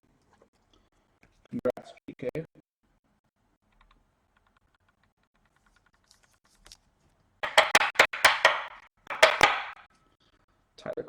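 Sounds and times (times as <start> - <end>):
loud sharp clattering: 7.4 - 9.8.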